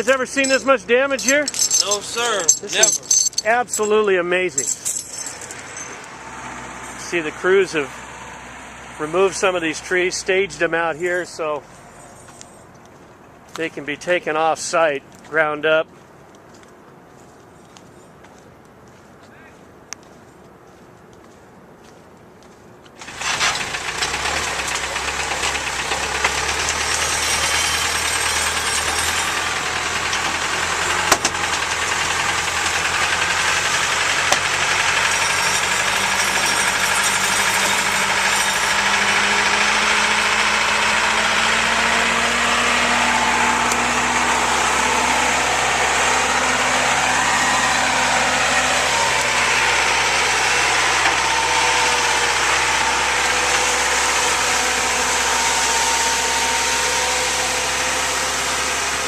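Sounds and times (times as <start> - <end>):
vehicle engine running: 23.0 - 59.0.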